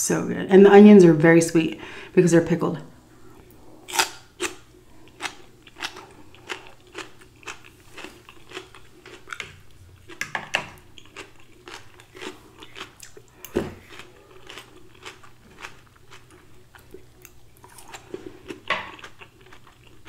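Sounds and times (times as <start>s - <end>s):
crunchy chewing of salad: 3.4s - 10.2s, 10.8s - 20.0s.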